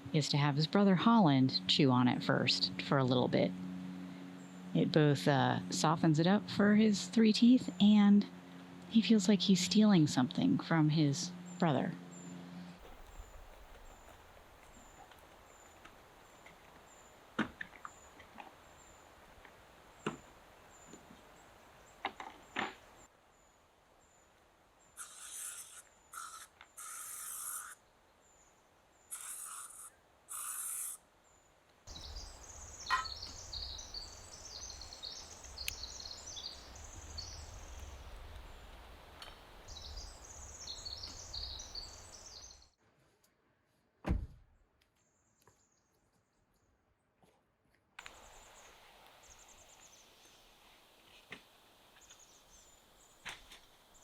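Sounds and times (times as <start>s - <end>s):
birds twittering: 11.1s - 17.2s, 24.9s - 38.8s, 39.7s - 42.7s.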